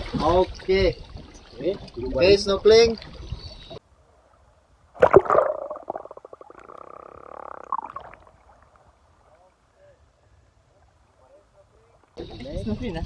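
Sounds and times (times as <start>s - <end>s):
underwater bubbling: 0.0s - 3.8s, 5.0s - 8.9s.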